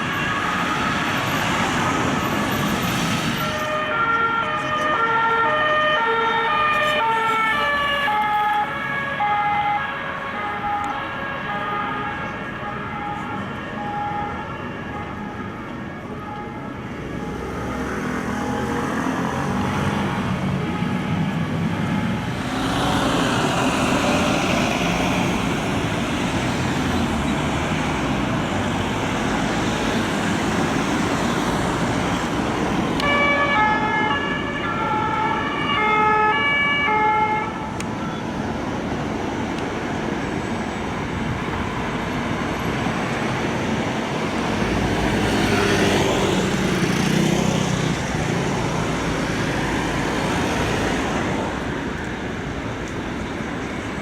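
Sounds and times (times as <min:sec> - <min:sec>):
two-tone police siren: 0:00.0 - 0:02.7, 0:03.3 - 0:43.1
car engines and road noise: 0:00.0 - 0:54.0.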